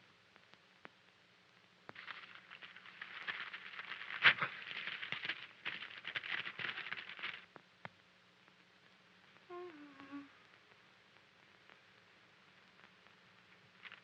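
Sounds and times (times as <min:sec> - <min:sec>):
paper crackling and rustling: 0:01.9 - 0:07.5, 0:13.8 - 0:14.0.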